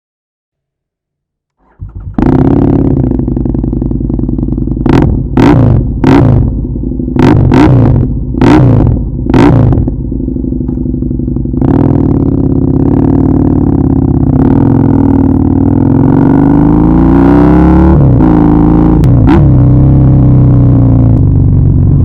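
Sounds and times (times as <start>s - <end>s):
motorcycle engine starting and idling: 1.5s - 16.5s.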